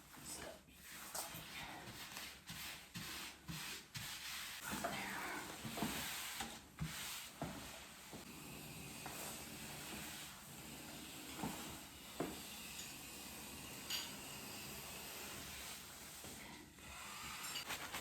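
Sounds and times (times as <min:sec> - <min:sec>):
wall covering rubbing and rustling: 0:00.0 - 0:18.0.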